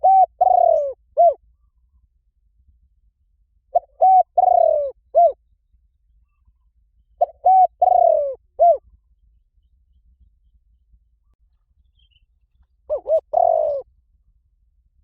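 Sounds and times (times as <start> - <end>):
dove cooing: 0.0 - 1.4, 3.7 - 5.4, 7.2 - 8.9, 12.9 - 13.9.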